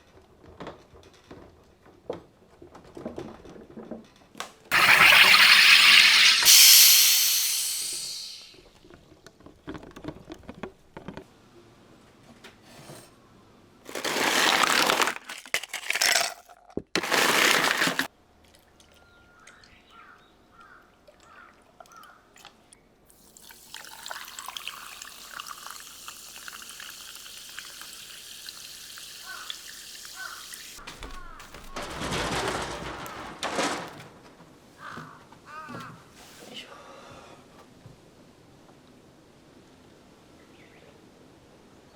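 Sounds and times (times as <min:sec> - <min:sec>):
running water: 0:04.7 - 0:08.6, 0:17.0 - 0:18.1, 0:23.2 - 0:31.7
water pouring and splashing: 0:04.7 - 0:08.6, 0:13.9 - 0:19.0, 0:23.1 - 0:34.2.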